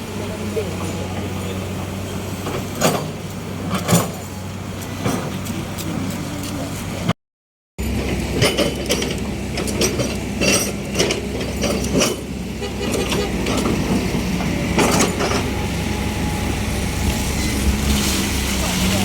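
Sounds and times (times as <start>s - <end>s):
diesel engine rumble: 0.0s - 7.2s, 7.8s - 19.0s
metallic clanks and rattles: 8.0s - 15.5s.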